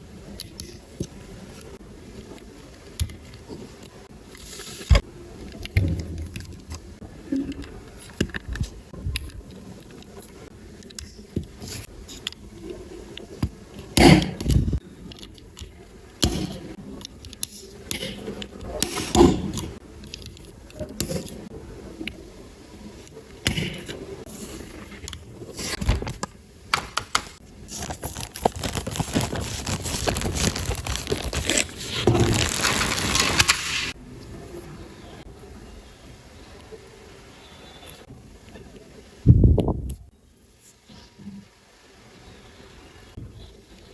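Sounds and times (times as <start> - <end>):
dense crinkling: 27.7 - 34.0.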